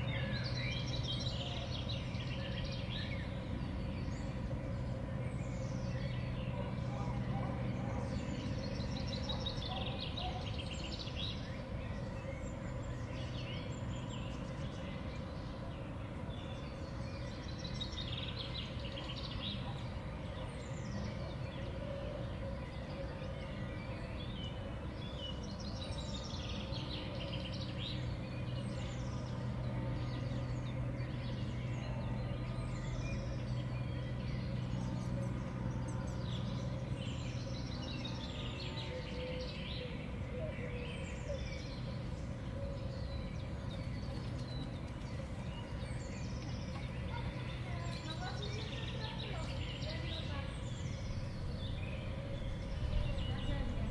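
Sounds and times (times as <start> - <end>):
songbirds chirping: 0.0 - 53.9
steady low hum: 50.2 - 53.9.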